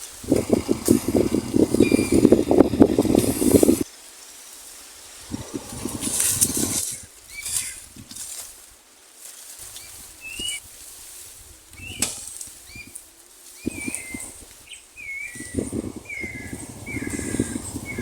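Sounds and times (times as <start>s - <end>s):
low buffeting noise: 0.1s - 3.8s, 5.3s - 7.0s, 15.2s - 18.0s
birds whistled chirps: 1.6s - 2.5s, 9.8s - 10.6s, 11.8s - 13.0s, 13.6s - 18.0s.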